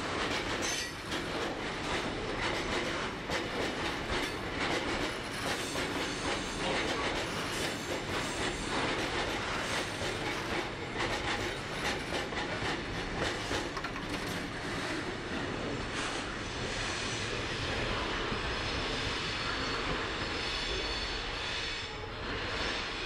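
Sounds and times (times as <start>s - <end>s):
freight train rumble: 0.0s - 23.0s
wheel clicks on track: 13.5s - 14.5s.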